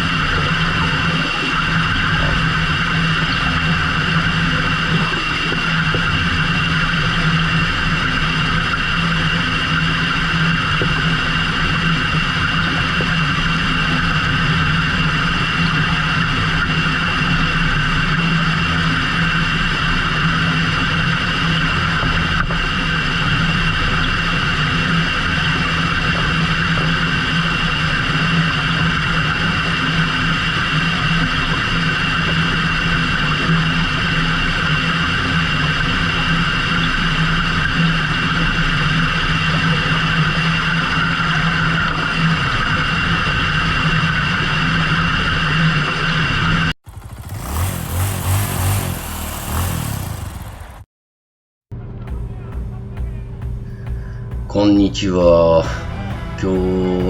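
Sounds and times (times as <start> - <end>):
boat engine humming: 46.8 - 50.9, 51.7 - 57.0.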